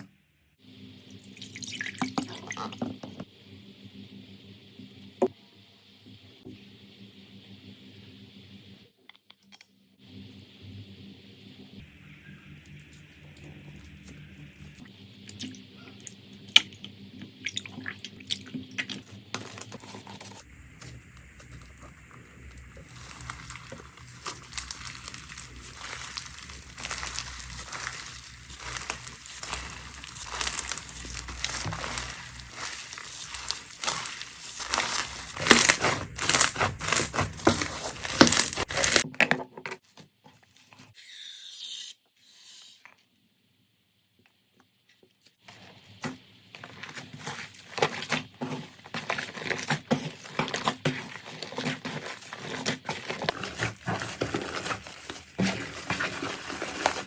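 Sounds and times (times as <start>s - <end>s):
slime squishes: 17.6s - 39.0s, 45.5s - 57.0s
slime crackling and popping: 20.8s - 39.0s.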